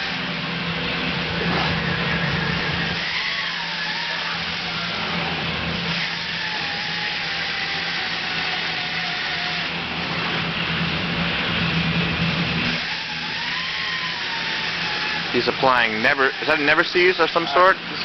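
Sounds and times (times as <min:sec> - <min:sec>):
faint wavering whine: 0:00.0 - 0:07.5
steady mechanical hum: 0:00.0 - 0:18.0.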